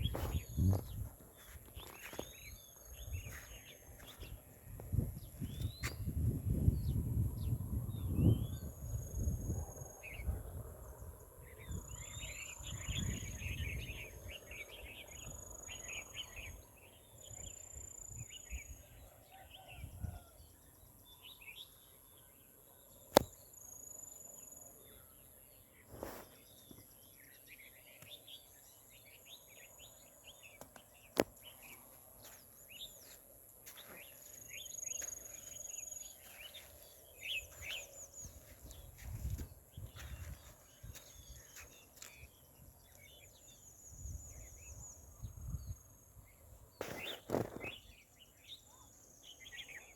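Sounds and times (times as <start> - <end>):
small birds chirping: 0.0 - 6.3, 22.9 - 49.9.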